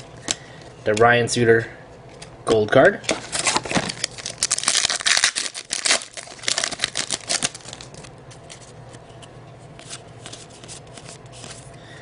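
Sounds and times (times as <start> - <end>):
card pack wrapper crinkling and tearing: 3.2 - 8.6.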